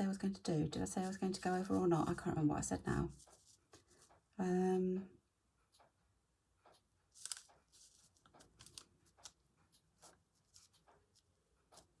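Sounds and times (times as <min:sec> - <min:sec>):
paper rustling: 0:03.1 - 0:04.2, 0:07.1 - 0:12.0
drawing strokes on paper: 0:03.1 - 0:04.3, 0:09.1 - 0:12.0.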